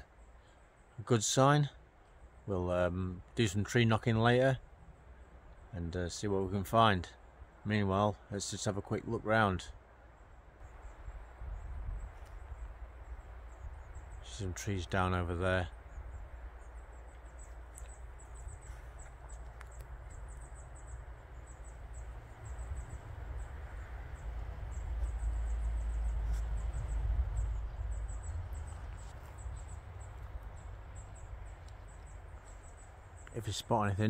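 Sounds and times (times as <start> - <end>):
wind rumble on microphone: 10.6 - 14.2, 17.8 - 32.1.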